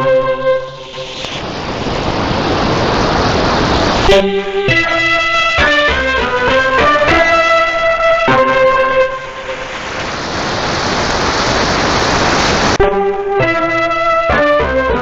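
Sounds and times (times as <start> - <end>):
radio static hiss: 0.4 - 5.8, 8.6 - 12.8
instrumental music: 4.1 - 9.7, 12.8 - 15.0.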